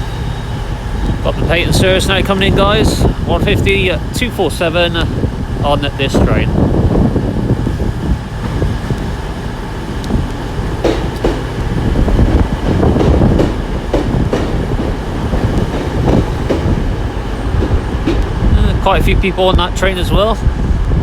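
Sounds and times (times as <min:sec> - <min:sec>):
diesel train rumble: 0:00.0 - 0:21.0
wheels clicking over rail joints: 0:08.3 - 0:19.5.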